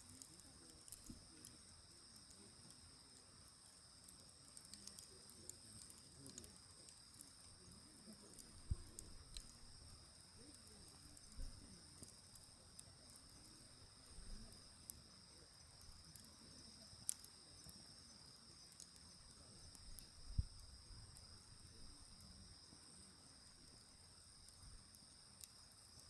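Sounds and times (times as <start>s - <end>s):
insect trill: 0.0s - 26.0s
wood fire crackling: 0.0s - 26.0s.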